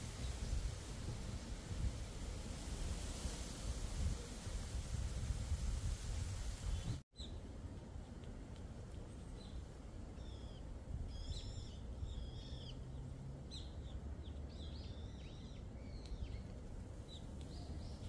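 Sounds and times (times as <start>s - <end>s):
wind rumble on microphone: 0.0s - 18.0s
small birds chirping: 6.6s - 7.4s, 9.0s - 18.0s.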